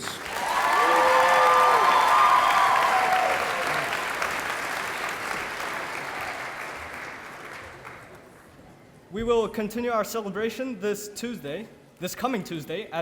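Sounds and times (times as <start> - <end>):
audience cheering: 0.0 - 7.0
audience applauding: 0.0 - 8.5.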